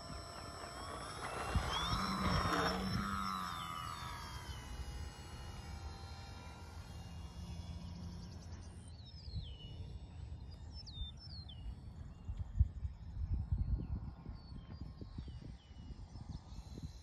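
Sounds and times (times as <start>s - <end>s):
wind rumble on microphone: 1.2s - 3.5s, 10.9s - 17.0s.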